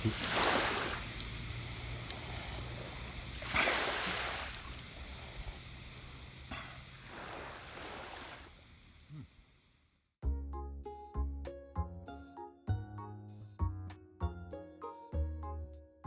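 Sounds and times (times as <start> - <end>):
small waves washing on shore: 0.0 - 9.4.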